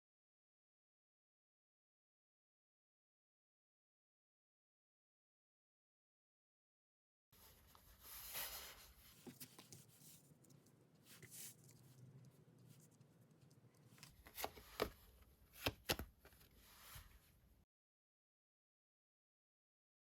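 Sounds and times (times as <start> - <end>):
cards rustling and clicking: 8.3 - 17.1
card snaps: 15.6 - 16.4.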